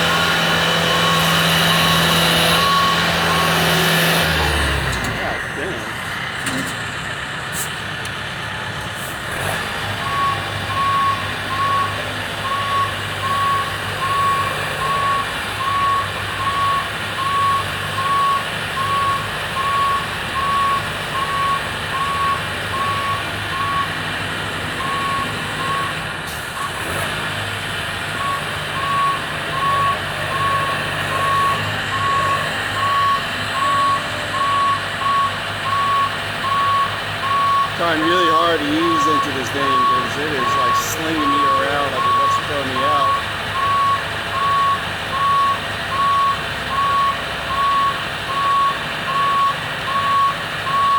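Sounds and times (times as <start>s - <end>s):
engine humming: 0.0s - 50.9s
motion alarm beeping: 28.2s - 50.9s.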